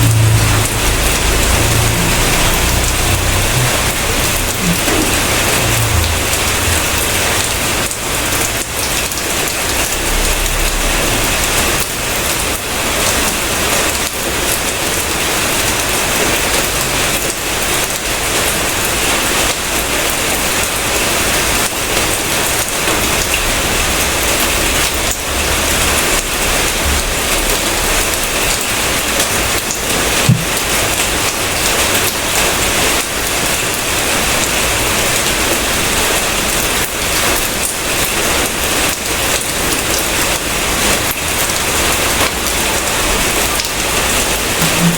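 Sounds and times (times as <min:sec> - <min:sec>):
heavy rain pattering: 0:00.0 - 0:44.9
loud tap: 0:30.3 - 0:30.6.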